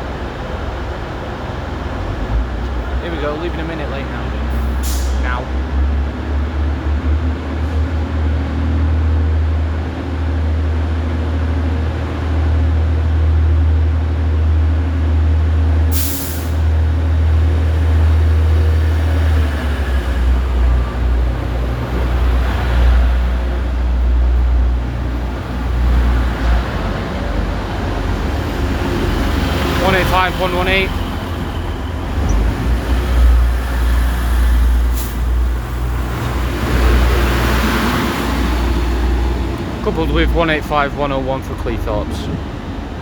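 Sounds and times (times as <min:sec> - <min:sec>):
diesel train engine droning: 0:00.0 - 0:43.0
sharp hiss of air: 0:15.9 - 0:16.6.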